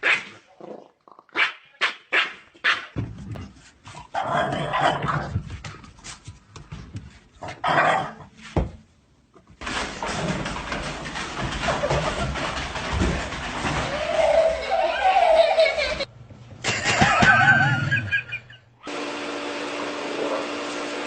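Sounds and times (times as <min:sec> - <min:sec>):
dog barking: 0:01.4 - 0:03.0.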